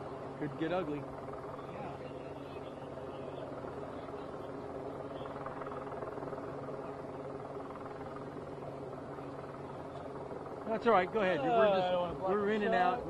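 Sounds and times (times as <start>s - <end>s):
engine drone: 0.0s - 13.0s
faint voices: 0.0s - 13.0s.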